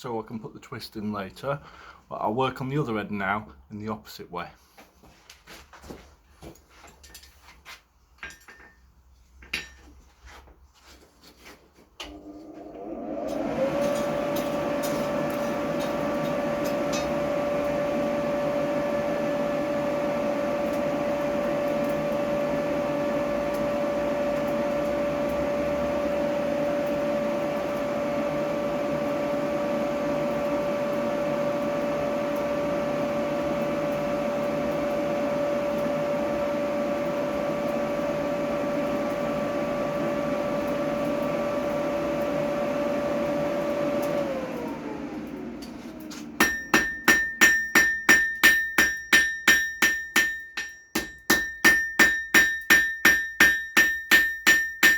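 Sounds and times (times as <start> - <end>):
electric blower whining and humming: 12.0 - 46.4.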